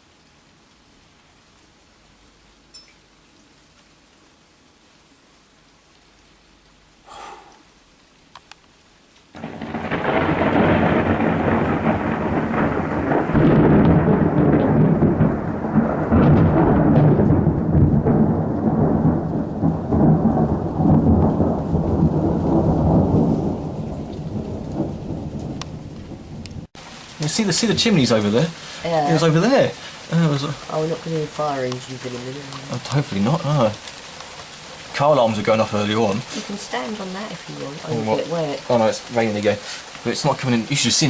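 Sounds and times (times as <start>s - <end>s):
deep thunder rumble: 9.4s - 26.8s
thunder crack: 9.4s - 26.8s.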